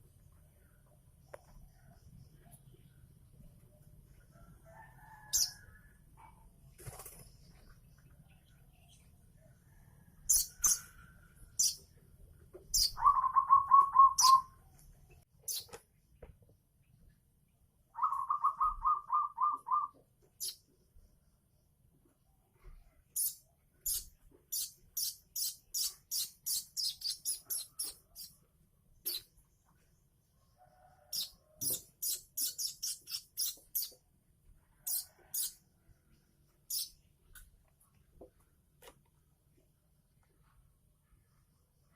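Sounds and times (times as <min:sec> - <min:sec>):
bird chicks chirping: 0:10.3 - 0:11.9, 0:12.6 - 0:14.6, 0:23.2 - 0:28.4, 0:31.1 - 0:34.0.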